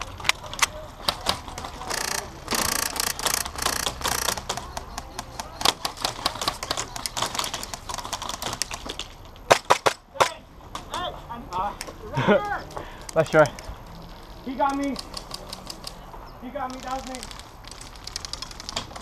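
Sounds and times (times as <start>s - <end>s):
airsoft guns firing: 0.4s - 10.4s.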